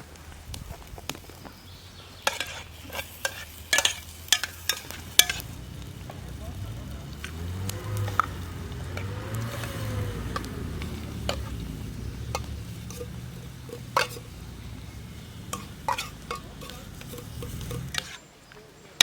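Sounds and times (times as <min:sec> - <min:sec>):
food sizzling in a pot: 0:00.4 - 0:18.2
metal spoon clinking on pot: 0:02.3 - 0:05.5, 0:15.4 - 0:18.2
steady low rumble: 0:04.7 - 0:18.0.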